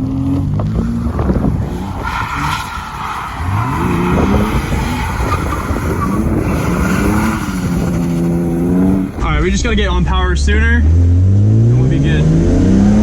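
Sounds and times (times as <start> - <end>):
tyres skidding on wet road: 0.0 - 9.4
car engine revving: 0.0 - 13.0.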